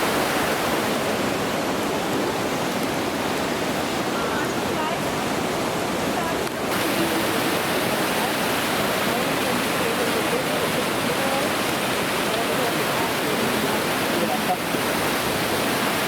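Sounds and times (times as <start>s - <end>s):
waterfall rushing: 0.0s - 16.0s
faint voices: 6.0s - 14.8s.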